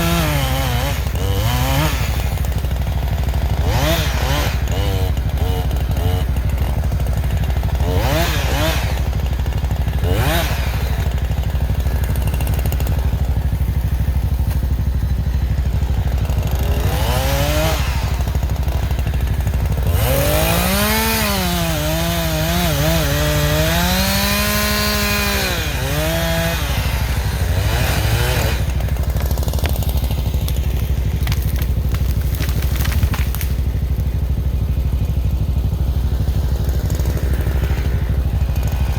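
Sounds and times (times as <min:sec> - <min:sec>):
chainsaw revving: 0:00.0 - 0:38.9
low engine drone: 0:26.6 - 0:38.9.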